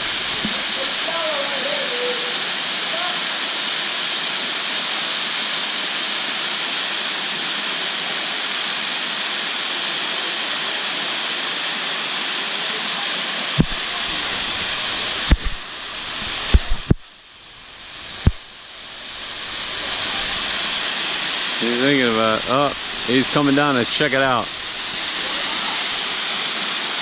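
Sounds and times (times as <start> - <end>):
waterfall rushing: 0.0 - 27.0
sharp low thumps: 13.6 - 13.8, 18.2 - 18.4.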